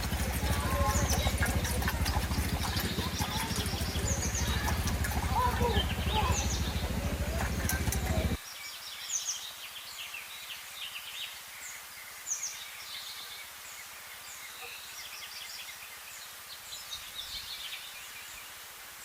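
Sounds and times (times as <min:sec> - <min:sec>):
flowing river water: 0:00.0 - 0:08.4
small birds chirping: 0:00.0 - 0:18.6.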